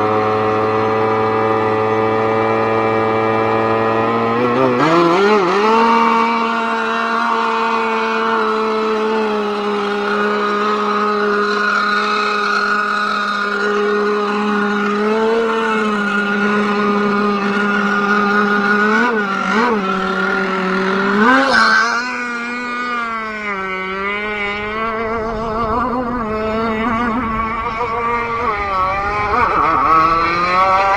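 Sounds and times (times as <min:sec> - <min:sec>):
engine throttle blips: 0:00.0 - 0:30.9
small two-stroke engine idling: 0:00.0 - 0:30.9.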